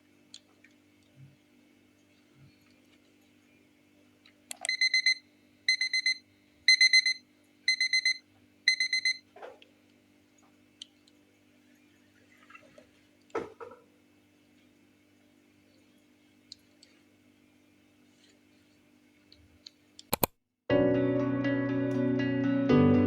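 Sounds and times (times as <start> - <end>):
faint steady hum: 0.0 - 20.1
electronic alarm beeping: 4.6 - 9.2.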